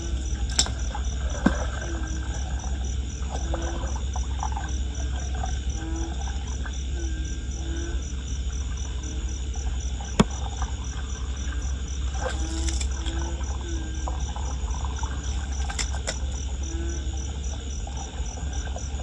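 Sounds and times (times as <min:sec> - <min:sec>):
crickets chirping: 0:00.0 - 0:19.0
steady low rumble: 0:00.0 - 0:19.0
sharp click: 0:15.6 - 0:16.2.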